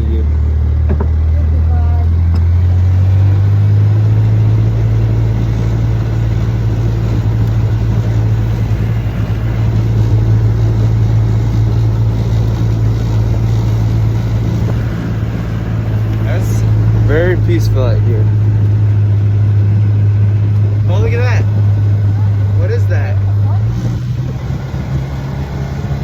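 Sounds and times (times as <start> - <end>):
car engine and road drone: 0.0 - 26.0.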